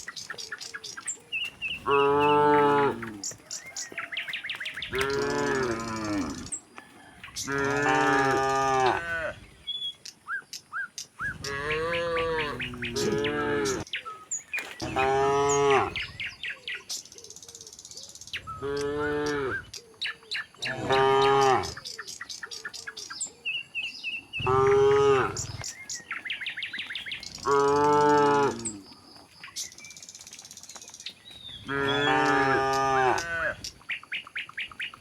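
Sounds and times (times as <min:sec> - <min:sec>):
birds chirping: 0:00.0 - 0:35.0
cattle mooing: 0:01.8 - 0:03.3, 0:04.9 - 0:06.5, 0:07.4 - 0:09.4, 0:11.4 - 0:13.8, 0:20.6 - 0:21.8, 0:24.4 - 0:25.7, 0:27.4 - 0:28.8, 0:31.7 - 0:33.6.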